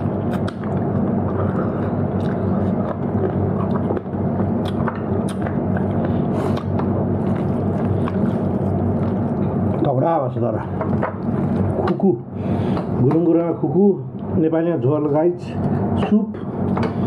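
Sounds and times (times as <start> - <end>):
person chewing food: 0.0 - 9.9
steady low hum: 0.0 - 17.0.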